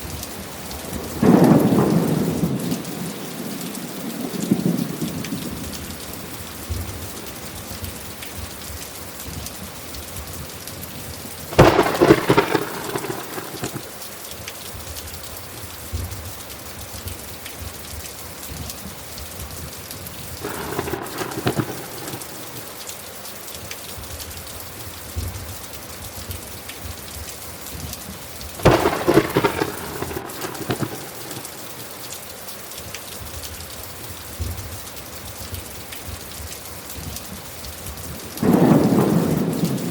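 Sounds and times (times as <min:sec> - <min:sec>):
thunderclaps: 0:00.0 - 0:08.7, 0:11.0 - 0:14.0, 0:20.0 - 0:22.8, 0:27.7 - 0:32.2, 0:37.9 - 0:39.9
steady rain falling: 0:00.0 - 0:39.9.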